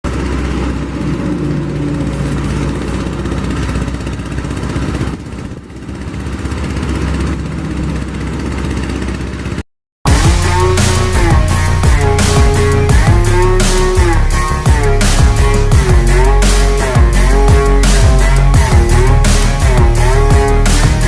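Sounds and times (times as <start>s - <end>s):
tractor engine running: 0.0s - 21.0s
music: 10.1s - 21.0s.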